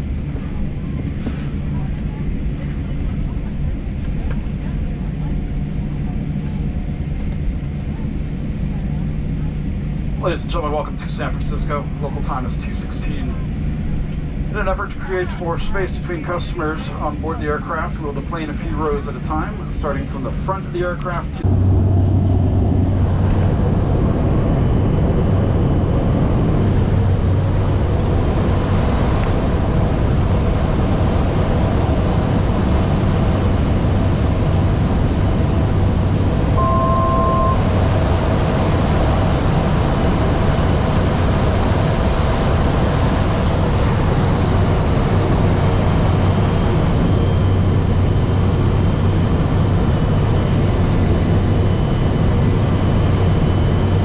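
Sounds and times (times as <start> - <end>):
airliner cabin engine drone: 0.0 - 54.0
brief tone: 36.5 - 38.4.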